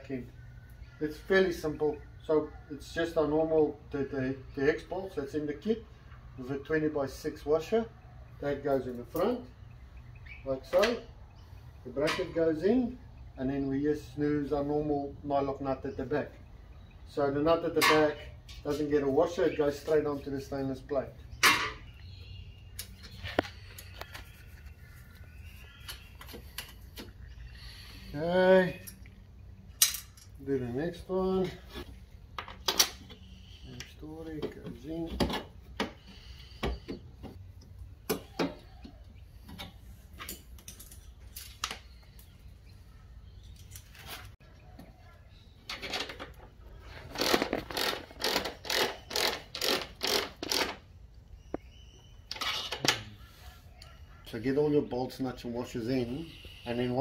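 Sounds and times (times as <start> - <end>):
ratchet spanner rasping: 47.2 - 50.8.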